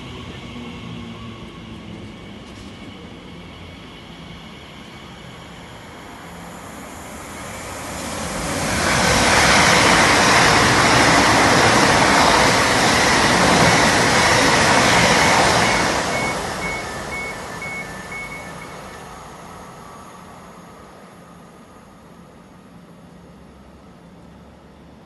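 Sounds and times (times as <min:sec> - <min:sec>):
train passing: 0:00.0 - 0:25.0.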